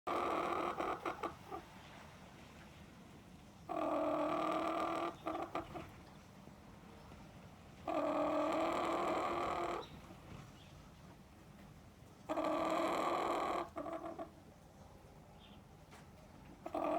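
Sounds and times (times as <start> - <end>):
chicken calling: 0.1 - 1.7, 3.7 - 5.9, 7.9 - 10.0, 12.3 - 14.3, 16.6 - 16.9
chicken clucking: 0.1 - 1.7, 3.7 - 5.9, 7.9 - 10.0, 12.3 - 14.3, 16.6 - 16.9.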